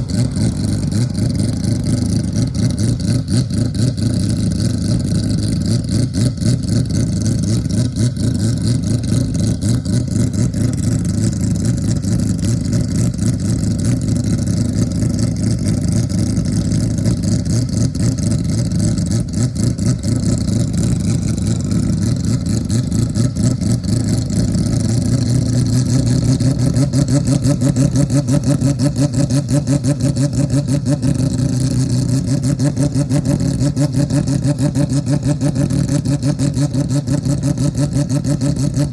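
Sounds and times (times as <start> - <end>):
racing engine running: 0.0 - 38.9.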